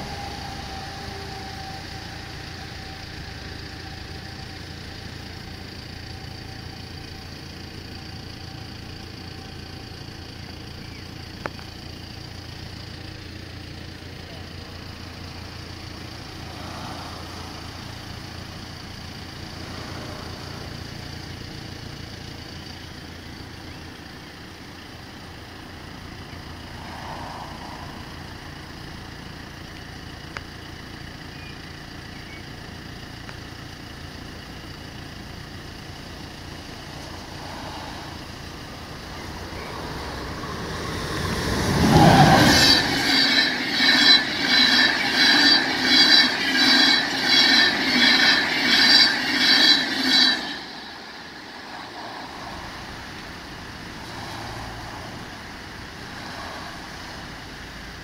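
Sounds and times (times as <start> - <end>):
train wheels rhythmic beat: 40.6 - 52.5.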